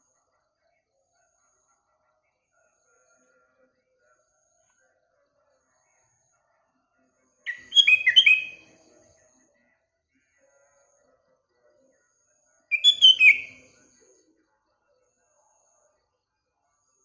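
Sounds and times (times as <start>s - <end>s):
bird whistling bright notes: 7.5s - 8.6s, 12.7s - 13.5s.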